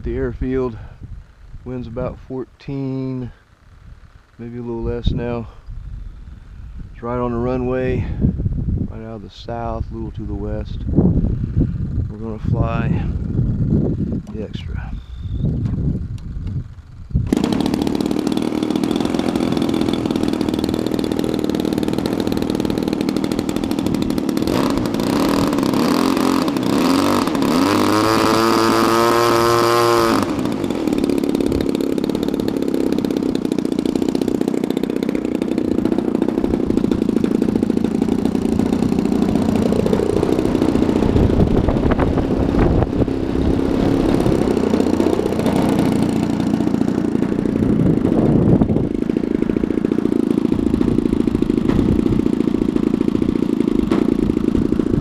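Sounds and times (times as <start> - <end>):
rising whine: 13.2 - 55.0
model plane engine running: 16.0 - 55.0.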